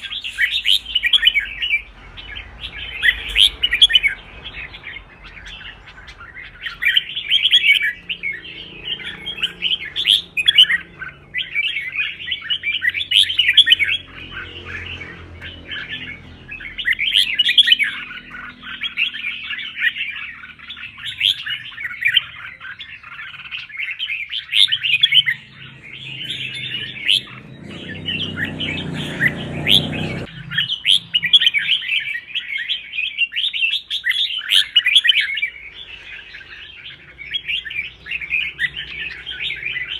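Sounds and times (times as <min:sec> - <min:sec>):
low rumbling noise: 0:00.0 - 0:07.4, 0:24.8 - 0:31.9
bird chirping song: 0:00.0 - 0:39.9.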